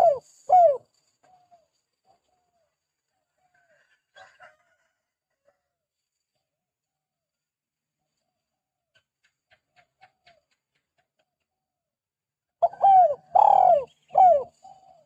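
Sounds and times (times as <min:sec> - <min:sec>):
dove cooing: 0:00.0 - 0:01.6, 0:12.6 - 0:15.0.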